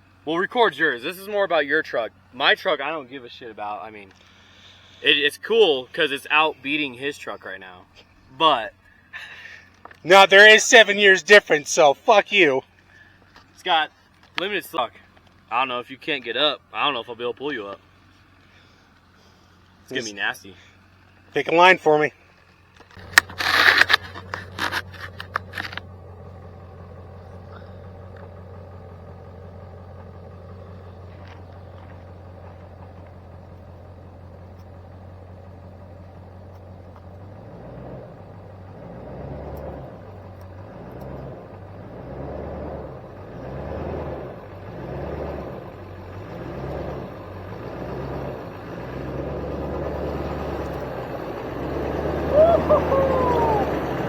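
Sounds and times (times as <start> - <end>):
pickup engine surging: 0.0 - 54.0.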